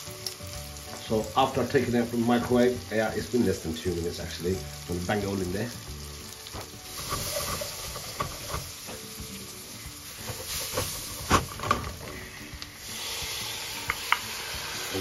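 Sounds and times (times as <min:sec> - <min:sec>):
onions sizzling in hot oil: 0:00.0 - 0:15.0
utensil stirring: 0:06.8 - 0:09.0, 0:10.1 - 0:11.4.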